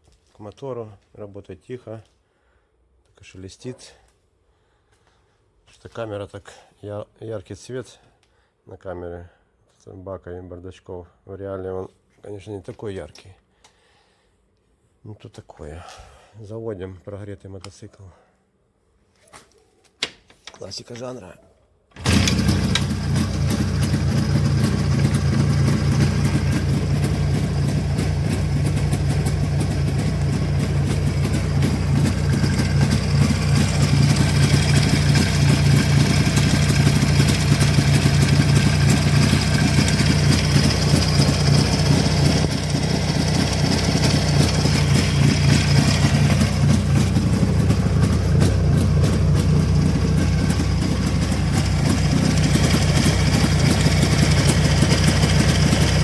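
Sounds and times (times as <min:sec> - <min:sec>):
motorcycle engine idling: 0:22.0 - 0:56.0.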